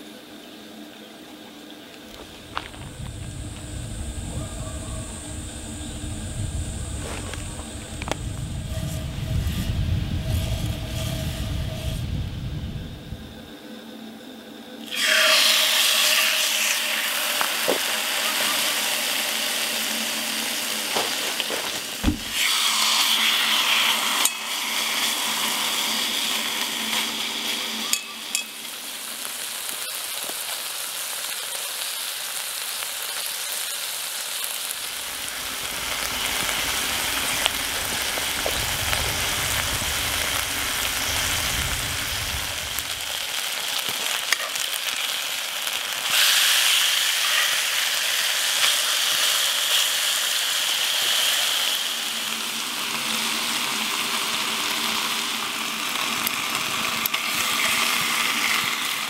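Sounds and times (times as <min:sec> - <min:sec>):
chicken sizzling in skillet: 0:02.1 - 0:13.2, 0:14.8 - 0:59.0.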